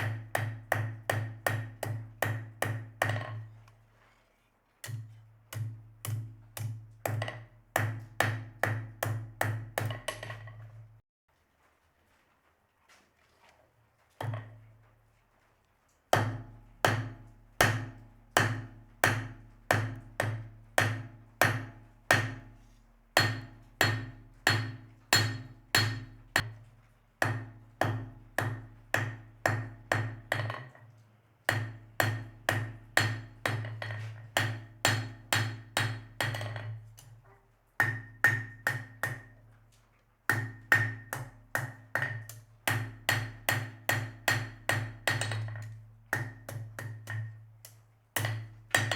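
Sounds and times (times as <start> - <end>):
hammer striking steel on anvil: 0.0 - 3.4, 4.8 - 10.3, 16.2 - 22.5, 23.2 - 26.5, 27.2 - 30.6, 31.5 - 36.8, 40.3 - 47.4, 48.2 - 48.9.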